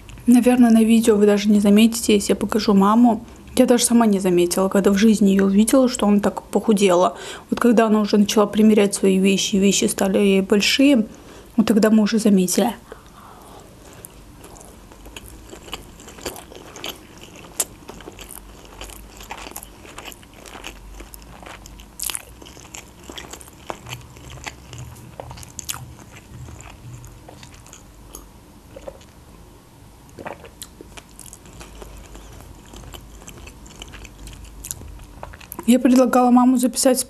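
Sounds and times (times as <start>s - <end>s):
wet chewing mouth sounds: 12.9s - 29.2s, 30.1s - 35.7s.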